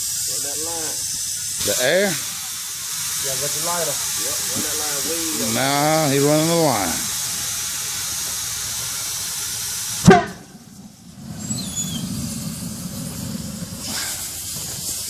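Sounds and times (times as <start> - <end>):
steady hiss: 0.0 - 15.0
low rumble of burning ether: 8.8 - 15.0
loud bang: 10.0 - 14.2.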